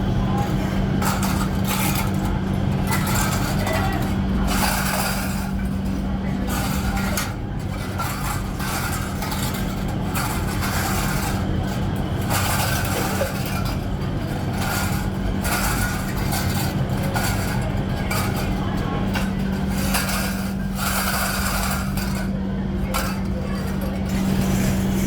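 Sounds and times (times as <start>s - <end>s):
machinery humming: 0.0s - 25.0s.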